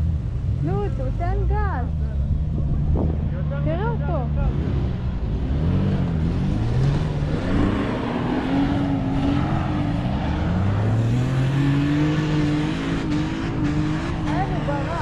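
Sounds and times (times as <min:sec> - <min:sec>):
engine revving hard: 0:04.3 - 0:15.0.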